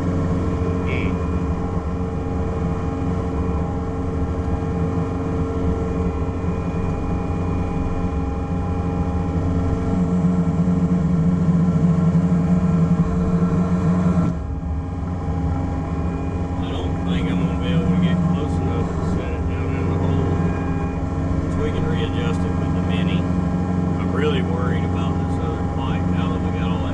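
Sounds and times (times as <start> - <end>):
excavator diesel engine under load: 9.0 - 26.9.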